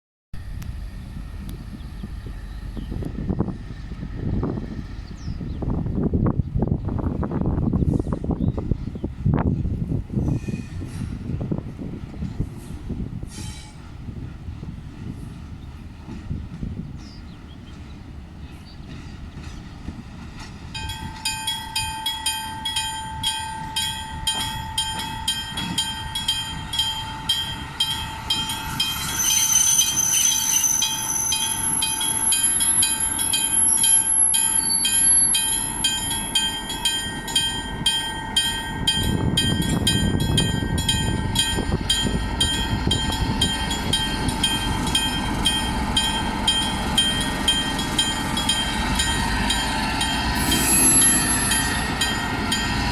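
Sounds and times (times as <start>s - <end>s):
train rumbling on rails: 0.3s - 52.9s
train brakes squealing: 10.2s - 11.3s, 12.6s - 13.9s, 26.6s - 36.6s, 41.2s - 52.9s.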